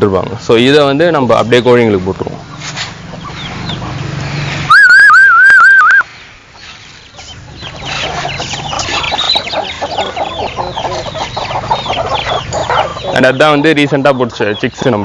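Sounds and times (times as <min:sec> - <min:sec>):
chickens clucking: 0:00.1 - 0:15.0
warbling whistle: 0:04.7 - 0:06.1.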